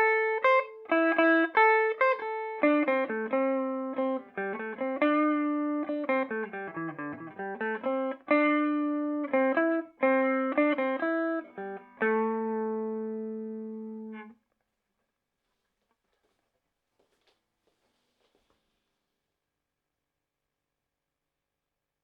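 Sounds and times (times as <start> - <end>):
clean electric guitar melody: 0.0 - 14.4.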